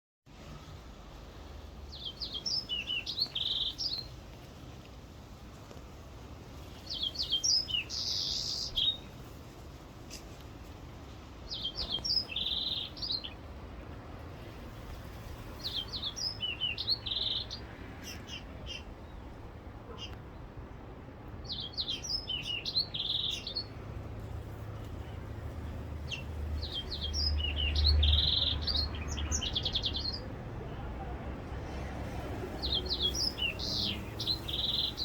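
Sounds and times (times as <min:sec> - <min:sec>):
songbird chirping with buzzy trills: 0:01.8 - 0:04.4, 0:06.6 - 0:09.4, 0:11.4 - 0:13.5, 0:15.2 - 0:19.3, 0:21.4 - 0:23.8, 0:25.0 - 0:30.3, 0:32.6 - 0:35.0.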